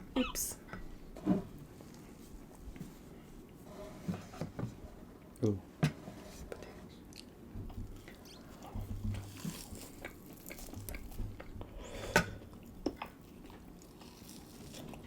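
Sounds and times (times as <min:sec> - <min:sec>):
chewing and biting: 0:08.0 - 0:11.6, 0:12.4 - 0:15.0.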